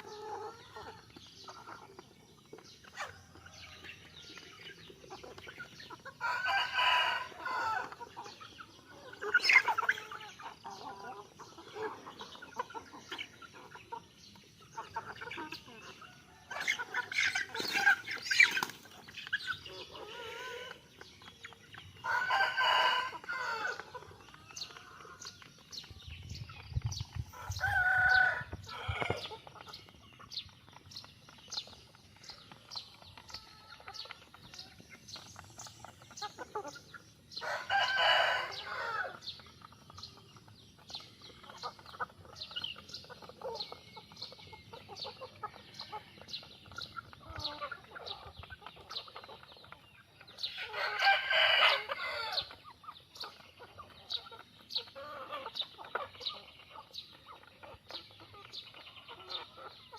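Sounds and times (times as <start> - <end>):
chicks peeping: 0.0 - 59.9
rooster crowing: 22.1 - 23.8, 37.4 - 39.2, 50.7 - 52.5.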